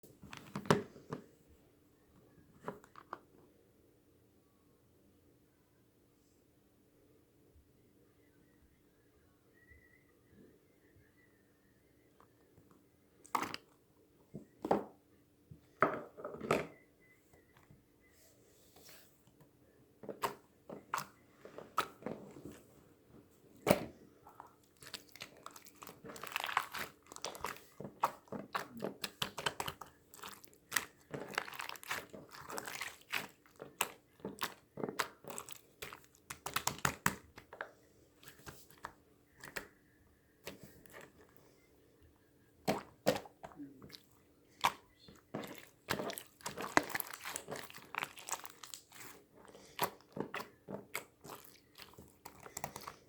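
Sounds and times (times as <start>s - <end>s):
close-up crunching and crinkling: 23.5s - 39.7s, 40.4s - 41.4s, 42.6s - 53.0s.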